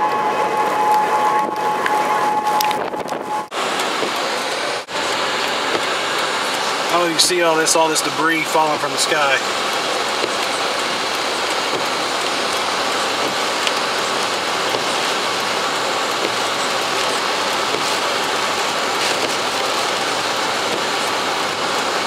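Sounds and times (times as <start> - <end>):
heavy rain on vehicle: 3.5 - 22.0
drops ticking on glass: 9.4 - 18.4.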